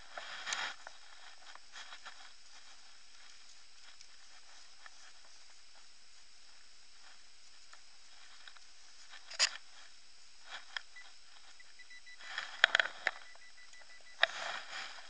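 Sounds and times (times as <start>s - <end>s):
metal detector beep: 10.9s - 15.0s.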